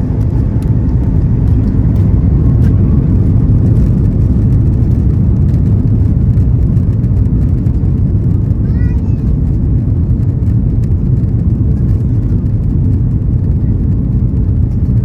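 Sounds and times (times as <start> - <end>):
airliner cabin engine rumble: 0.0 - 15.0.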